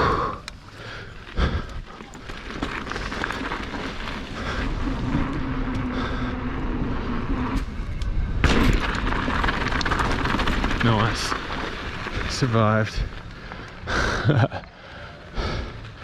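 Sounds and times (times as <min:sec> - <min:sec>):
bike tyres rolling on dirt: 0:00.0 - 0:16.0
bike landing burst: 0:08.4 - 0:10.8.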